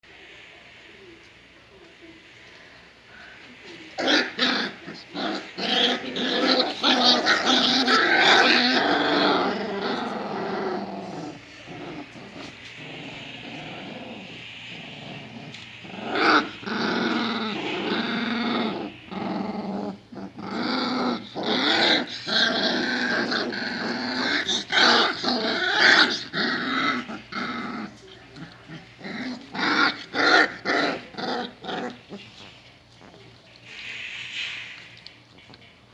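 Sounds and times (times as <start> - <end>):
puppies growling: 3.1 - 35.9.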